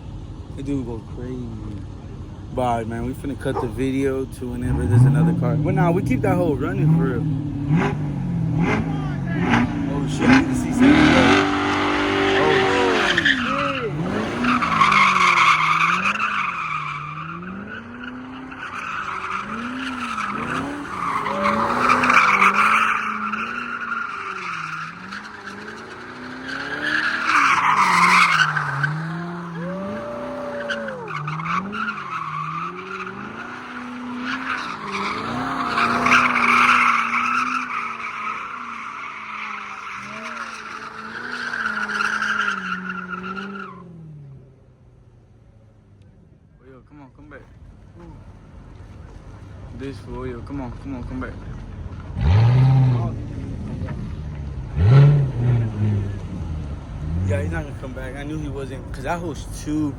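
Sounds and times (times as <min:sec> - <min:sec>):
car engine revving: 0:00.0 - 0:46.6, 0:47.2 - 0:59.9
tyres squealing: 0:08.6 - 0:43.9.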